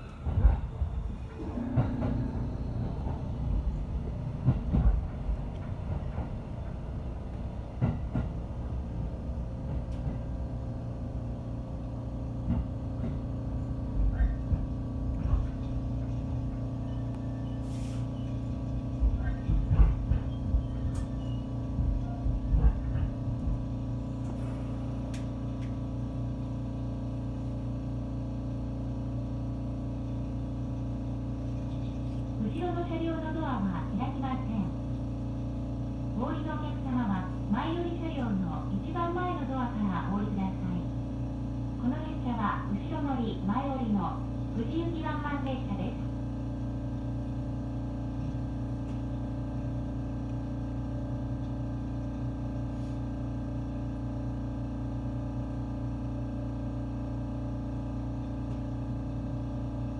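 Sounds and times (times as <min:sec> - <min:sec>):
train wheels clattering over track: 0:00.0 - 0:10.7, 0:12.4 - 0:25.8.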